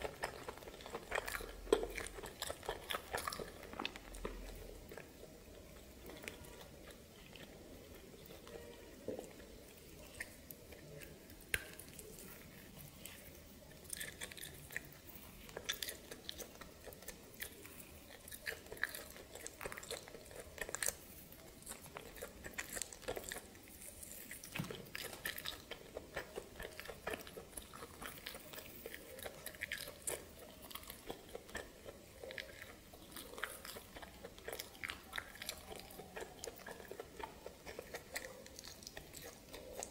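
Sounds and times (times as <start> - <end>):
person chewing crunchy meat: 0.0 - 39.9.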